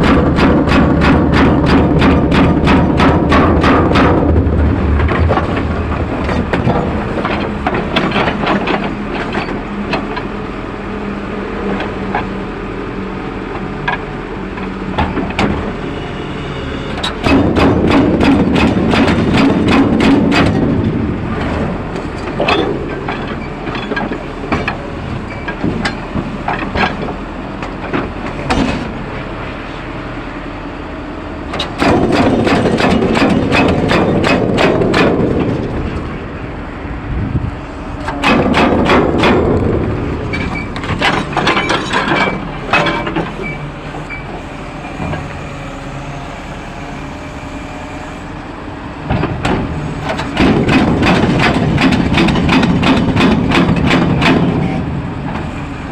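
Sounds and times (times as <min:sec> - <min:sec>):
jackhammer breaking concrete: 0:31.7 - 0:35.7.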